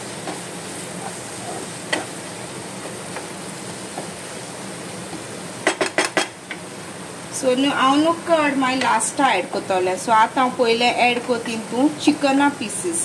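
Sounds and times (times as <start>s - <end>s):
masala sizzling in a wok: 0.0s - 13.0s
spatula knocking against pan: 5.1s - 6.6s.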